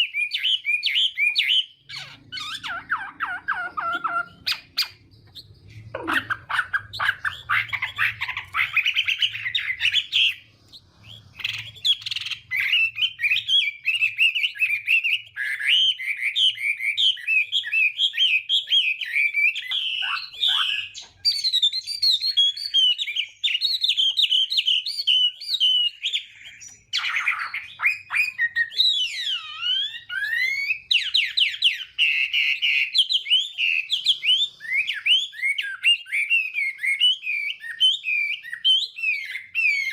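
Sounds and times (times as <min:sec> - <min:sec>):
songbird singing trills and whistles: 0:00.0 - 0:39.9.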